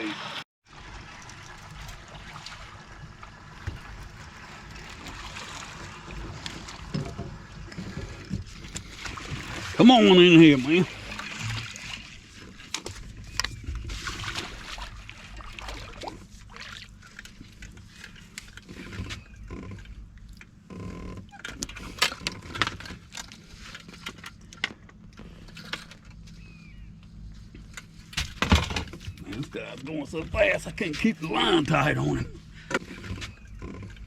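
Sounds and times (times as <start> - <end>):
boat motor running: 0.9 - 34.0.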